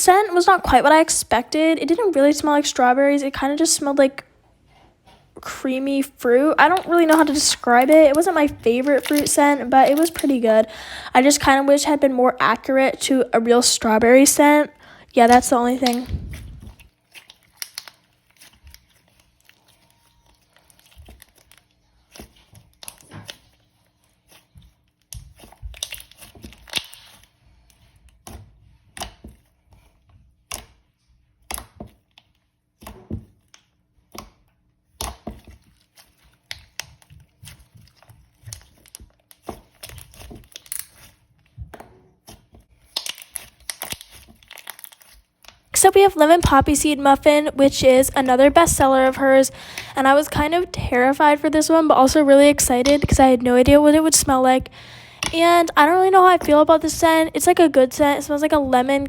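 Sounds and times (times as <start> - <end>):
slime squished by hand: 6.6 - 10.8, 15.3 - 57.3.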